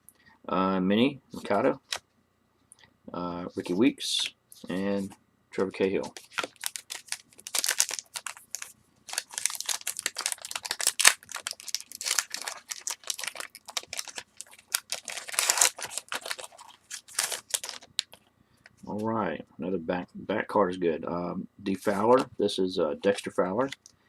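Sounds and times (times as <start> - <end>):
foil wrapper tearing and crinkling: 6.0 - 18.1
cards being handled: 6.0 - 18.2.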